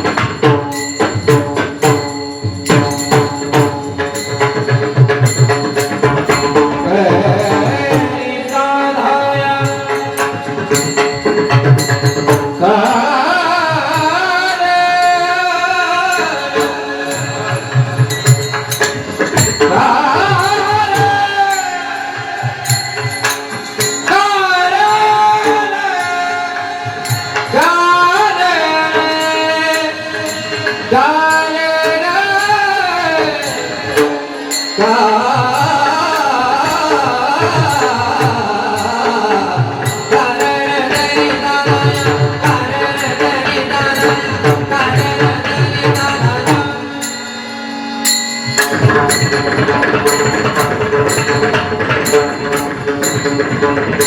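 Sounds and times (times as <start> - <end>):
devotional singing: 5.2 - 53.8.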